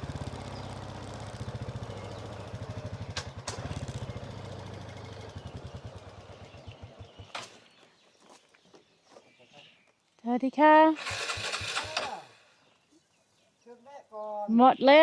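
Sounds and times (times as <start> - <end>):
motorbike engine stalling: 0.0 - 7.8, 11.0 - 12.6
sharp clicks: 11.0 - 12.4.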